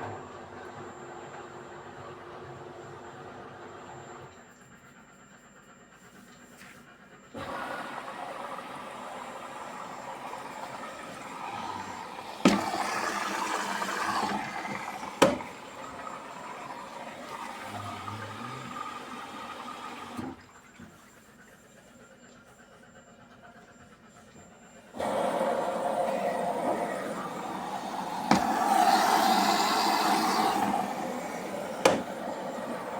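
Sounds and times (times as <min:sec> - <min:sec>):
water rushing into washing machine: 0:07.4 - 0:21.0, 0:25.0 - 0:32.9
washing machine clicks: 0:11.8 - 0:17.6, 0:27.8 - 0:32.9.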